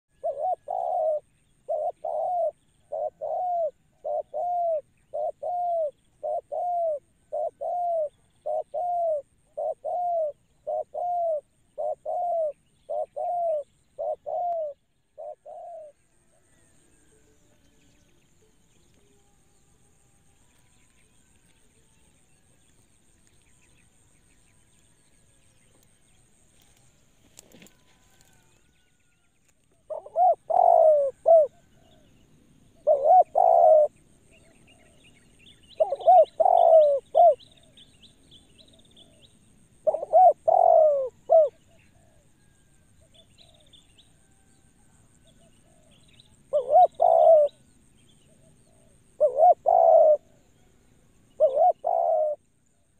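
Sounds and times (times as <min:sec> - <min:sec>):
dove cooing: 0:00.1 - 0:16.7, 0:29.8 - 0:34.0, 0:35.7 - 0:37.8, 0:38.7 - 0:43.6, 0:45.3 - 0:47.6, 0:48.3 - 0:50.6, 0:51.3 - 0:52.4
faint high bird chirps: 0:00.1 - 0:52.9.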